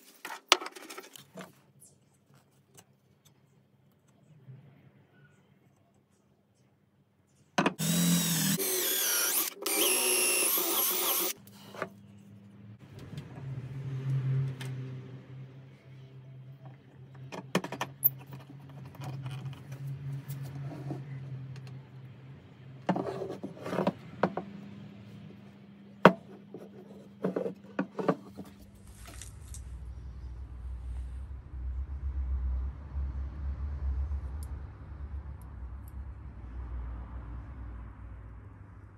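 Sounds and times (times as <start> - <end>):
power tool whining: 7.8 - 11.4
low hum: 28.7 - 38.9.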